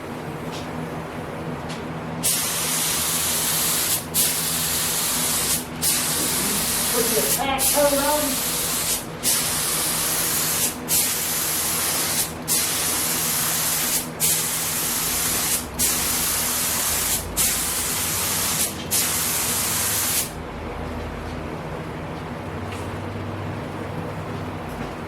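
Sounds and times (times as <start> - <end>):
spray gun hissing: 2.2 - 20.4.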